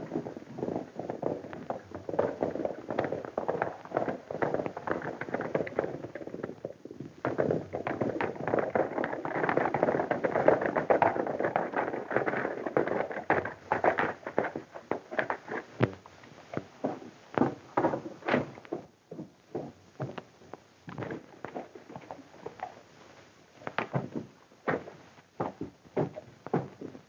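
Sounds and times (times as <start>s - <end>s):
film hiss: 0.0s - 27.0s
rapid clattering knocks and thuds: 7.2s - 16.0s, 23.7s - 27.0s.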